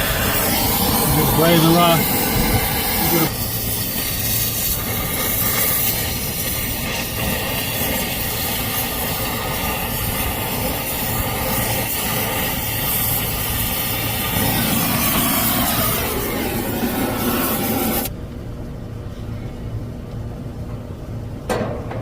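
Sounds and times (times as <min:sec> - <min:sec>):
torch flame hissing: 0:00.0 - 0:18.1.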